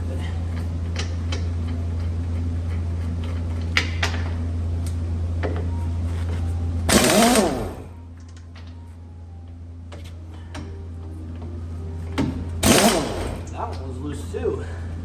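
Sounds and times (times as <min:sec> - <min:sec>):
steady low hum: 0:00.0 - 0:15.0
power wrench whirring: 0:06.9 - 0:08.0, 0:12.6 - 0:13.6.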